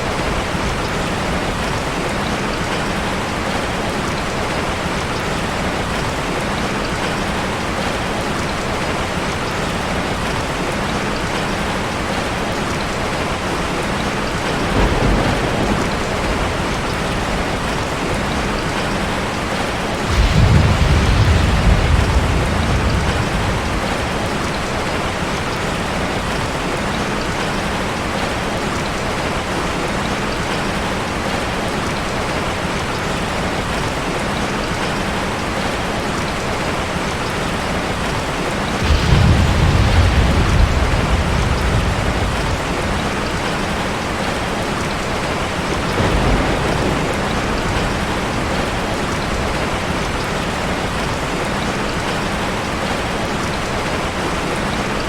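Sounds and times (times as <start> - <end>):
heavy rain on a car: 0.0 - 55.0
thunder rumbling: 13.0 - 26.6, 38.0 - 51.3.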